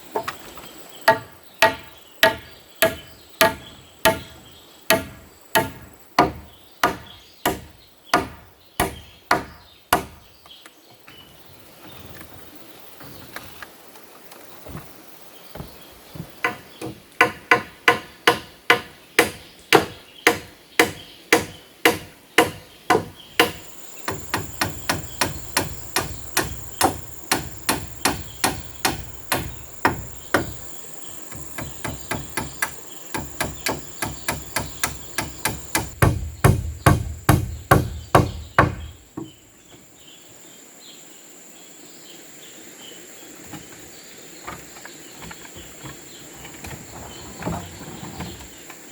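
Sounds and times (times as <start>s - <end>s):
high insect drone: 0.0s - 10.3s, 11.0s - 48.9s
hammer driving nails: 16.5s - 30.6s, 31.3s - 39.3s.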